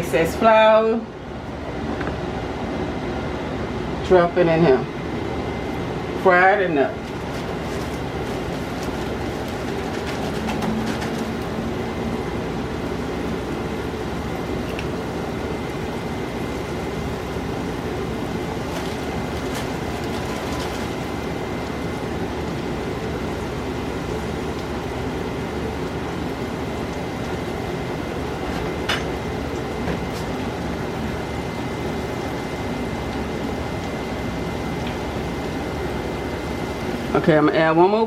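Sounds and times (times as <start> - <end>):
oil popping: 7.0 - 15.9
chicken sizzling in hot oil: 7.0 - 37.1.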